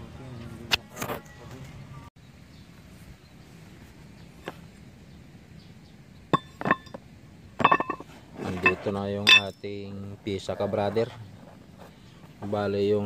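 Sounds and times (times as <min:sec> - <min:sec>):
brake pads clinking together: 0:06.3 - 0:07.0, 0:07.6 - 0:09.5.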